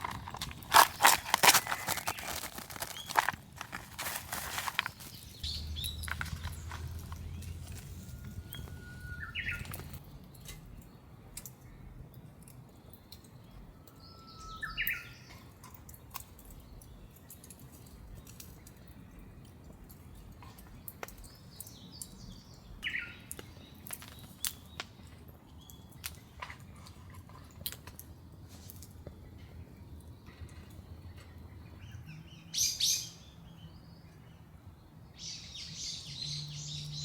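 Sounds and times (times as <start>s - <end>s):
bird singing whistled song: 5.4s - 10.0s, 13.9s - 15.4s
rain dripping and pattering: 14.8s - 28.1s.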